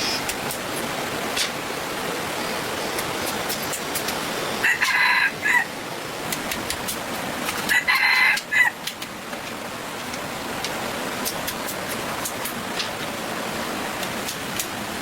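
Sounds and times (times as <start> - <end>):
rooster crowing: 4.6 - 5.7, 7.7 - 8.8.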